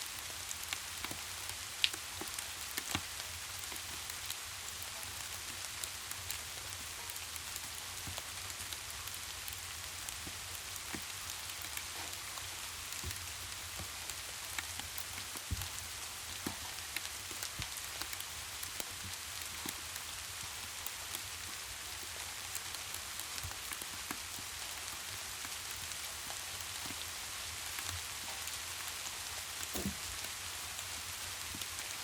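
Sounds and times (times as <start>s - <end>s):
rain hissing: 0.0s - 32.0s.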